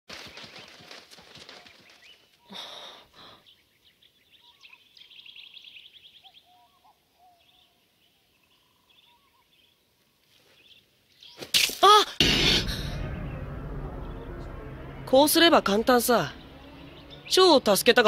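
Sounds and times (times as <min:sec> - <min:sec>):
faint birdsong: 0:00.1 - 0:11.6, 0:15.9 - 0:18.0.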